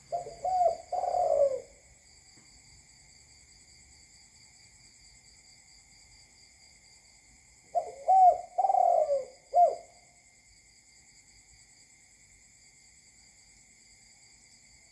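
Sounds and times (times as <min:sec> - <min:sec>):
dove cooing: 0:00.0 - 0:01.8, 0:07.7 - 0:09.9
insects buzzing: 0:00.0 - 0:14.9.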